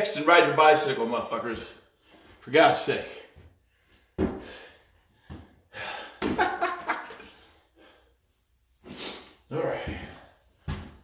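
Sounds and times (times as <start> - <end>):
man breathing heavily: 3.1 - 6.4, 7.2 - 10.6.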